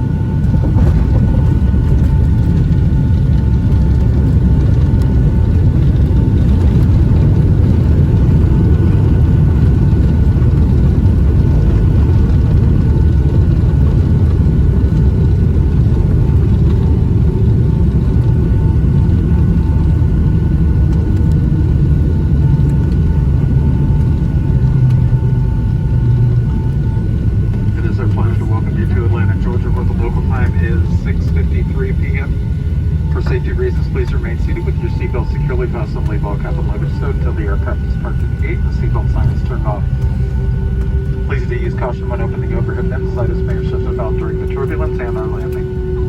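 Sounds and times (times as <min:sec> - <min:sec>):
airplane engine and airflow rumble: 0:00.0 - 0:46.0.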